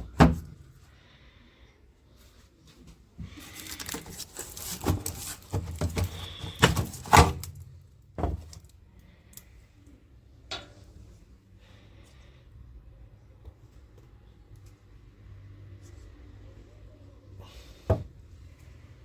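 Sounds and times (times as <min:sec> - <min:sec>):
hard objects knocking and rattling: 0:03.8 - 0:07.6.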